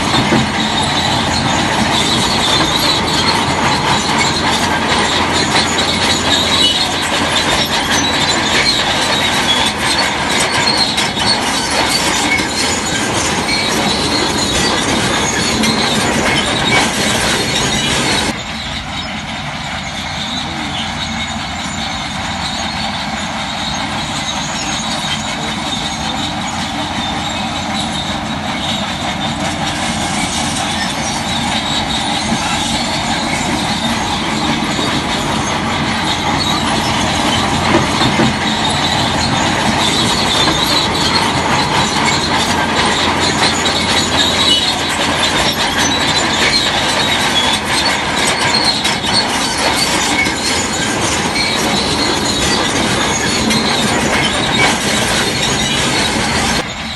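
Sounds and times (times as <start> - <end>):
bulldozer diesel engine under load: 0.0 - 56.9
steel tracks clanking and squealing: 0.0 - 56.9.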